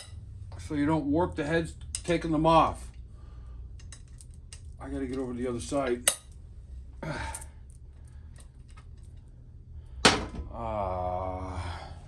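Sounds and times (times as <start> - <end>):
man humming or groaning: 10.5 - 12.0.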